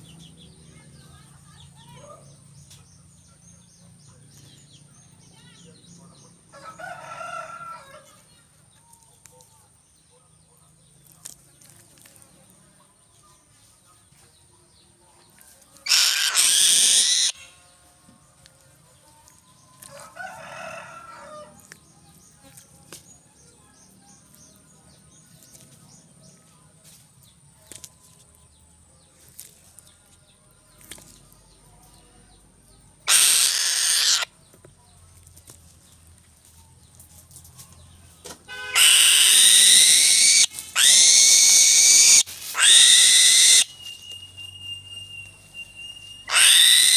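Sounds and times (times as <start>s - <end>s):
harsh bird calls: 15.8s - 17.6s, 33.1s - 34.3s, 38.5s - 46.9s.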